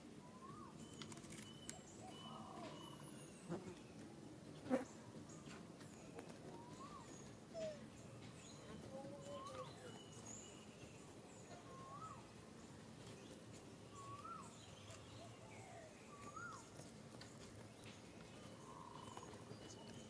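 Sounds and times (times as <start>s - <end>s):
whistled bird call: 0.2s - 3.2s, 6.5s - 7.8s, 11.6s - 12.3s, 14.0s - 14.5s, 15.6s - 16.6s
faint high bird chirps: 0.2s - 3.9s, 5.4s - 12.4s, 13.9s - 16.9s.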